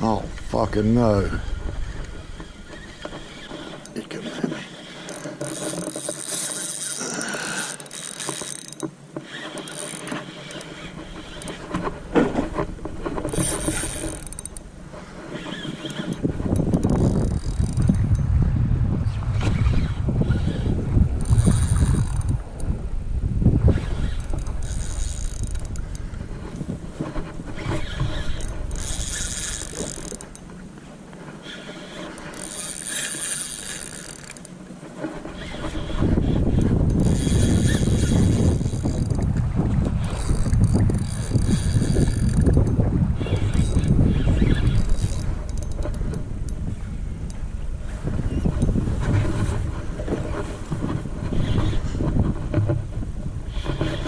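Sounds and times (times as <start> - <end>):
fishing gear clicking and rattling: 0.0 - 18.3, 19.7 - 22.8, 23.7 - 54.0
low rumble: 17.8 - 21.5.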